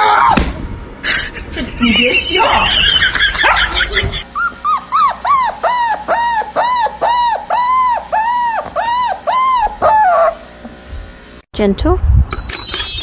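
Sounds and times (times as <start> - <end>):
animal giving high calls: 4.4 - 10.4.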